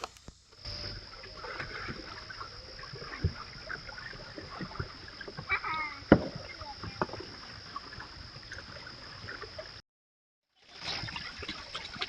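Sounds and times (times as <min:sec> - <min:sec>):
high-pitched whine: 0:00.0 - 0:02.6
water splashing: 0:00.0 - 0:09.8, 0:10.6 - 0:12.0
boat knocking on water: 0:03.1 - 0:07.4.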